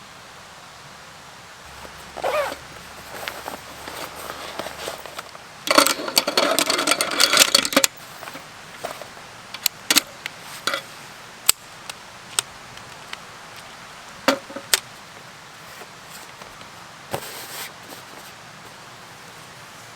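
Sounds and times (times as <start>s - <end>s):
small hard objects clattering: 1.7s - 9.2s.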